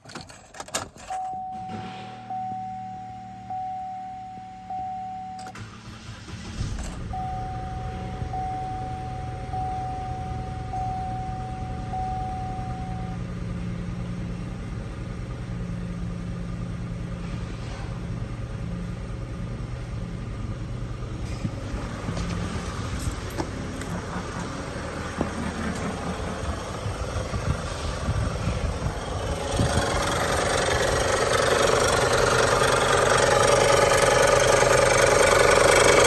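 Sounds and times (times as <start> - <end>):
car engine starting and idling: 0.0 - 36.0
dashboard warning chime: 1.0 - 5.6, 6.9 - 13.3.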